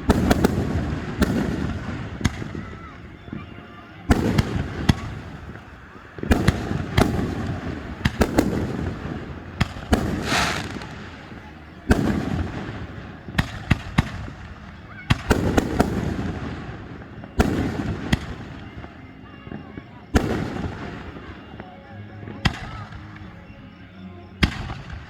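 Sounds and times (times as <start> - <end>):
crackling firework sizzling: 0.0 - 21.6
fireworks booming: 0.0 - 21.6.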